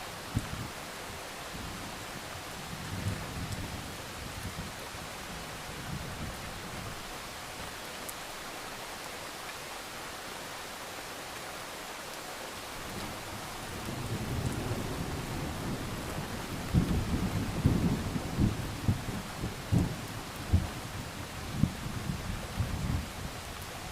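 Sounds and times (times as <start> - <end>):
rolling thunder: 13.7 - 20.8.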